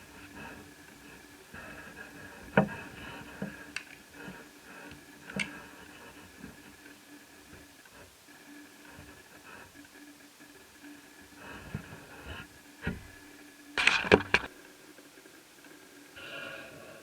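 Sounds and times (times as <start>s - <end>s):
small laptop parts clicking: 4.8s - 5.6s, 13.8s - 14.5s.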